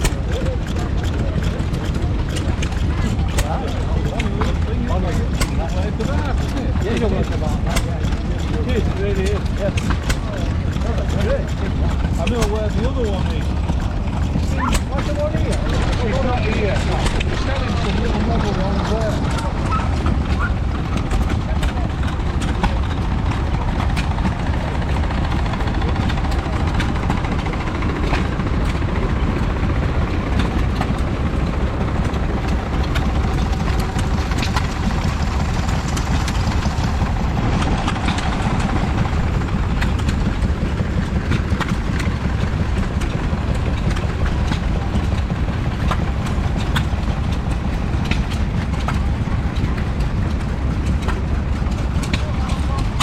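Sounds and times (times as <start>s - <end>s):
stationary engine rumbling: 0.0s - 53.0s.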